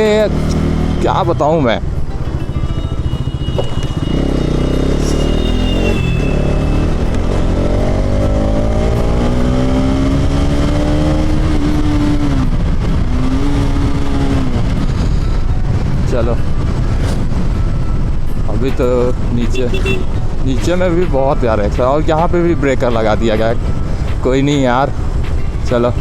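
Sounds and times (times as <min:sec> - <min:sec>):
motorcycle engine accelerating: 0:00.0 - 0:18.5
wind and road rumble: 0:00.0 - 0:26.0.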